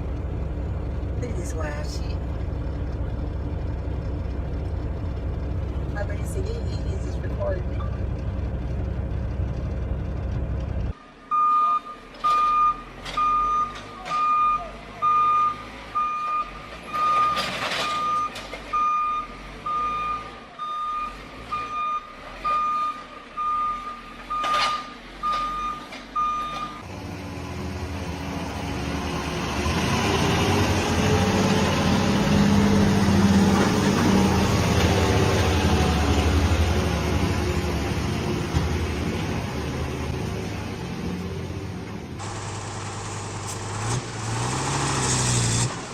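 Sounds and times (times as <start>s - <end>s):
diesel engine running: 0.0s - 11.3s, 26.8s - 45.9s
reversing alarm beeping: 11.3s - 26.8s.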